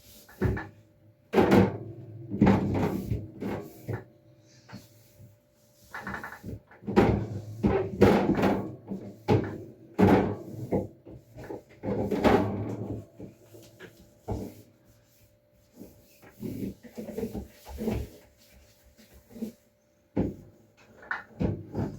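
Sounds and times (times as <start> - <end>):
refrigerator items knocking and rattling: 0.3 - 4.2, 5.9 - 14.6, 20.1 - 21.9.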